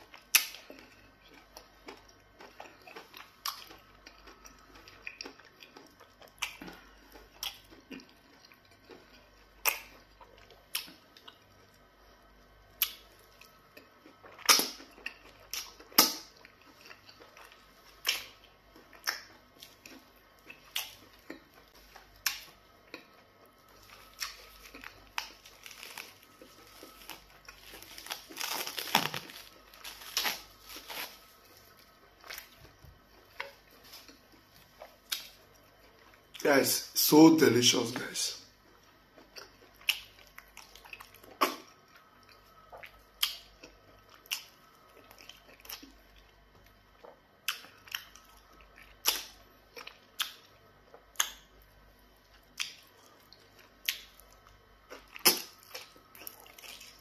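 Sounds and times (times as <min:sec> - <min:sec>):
wet chewing: 0:00.0 - 0:36.4, 0:38.6 - 0:57.0
plastic wrap rustling: 0:23.8 - 0:34.8
lip smacks: 0:49.0 - 0:50.5, 0:51.2 - 0:51.4.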